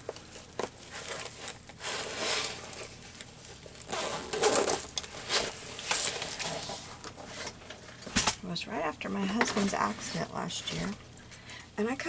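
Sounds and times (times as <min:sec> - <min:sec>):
bag rustling: 0:00.0 - 0:08.1.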